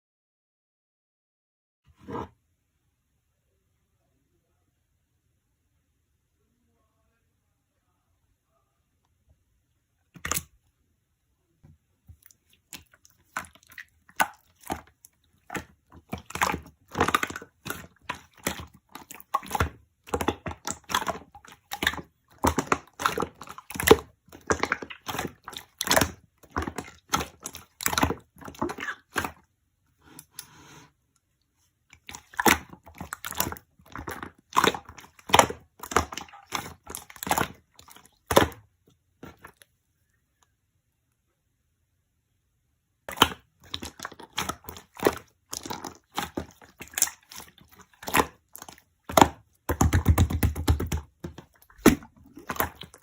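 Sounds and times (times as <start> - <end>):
slime crackling and squishing: 12.1 - 29.4, 31.9 - 39.6, 43.0 - 53.0.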